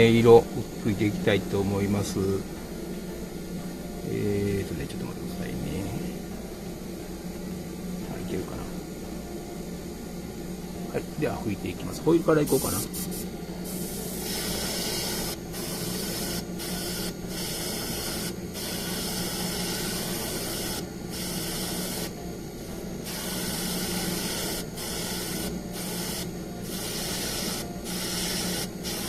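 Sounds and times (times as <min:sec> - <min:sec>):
constant low hum: 0:00.0 - 0:29.0
airbrush spraying hiss: 0:12.4 - 0:22.1, 0:23.0 - 0:29.0.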